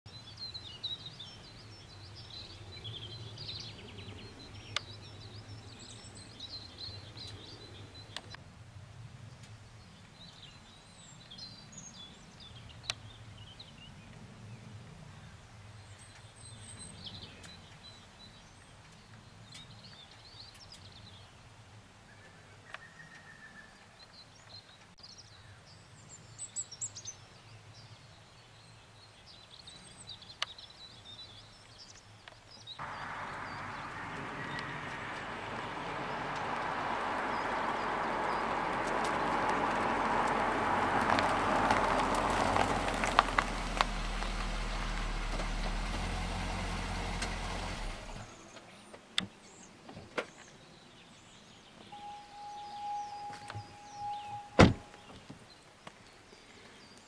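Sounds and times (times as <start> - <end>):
birds chirping and trilling: 0.1 - 8.4, 28.5 - 40.1, 48.2 - 57.0
low outdoor rumble: 32.8 - 48.6.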